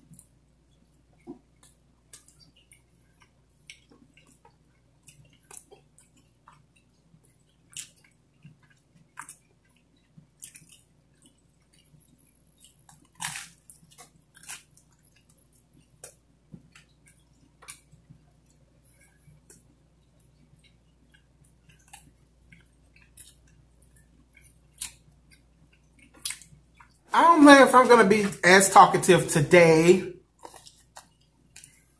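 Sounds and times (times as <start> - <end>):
person chewing pizza: 0.0 - 31.9.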